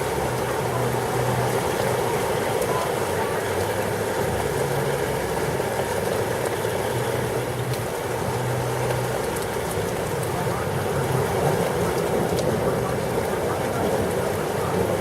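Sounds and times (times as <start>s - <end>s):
heavy rain falling: 0.0s - 15.0s
raindrop ticks: 5.8s - 15.0s.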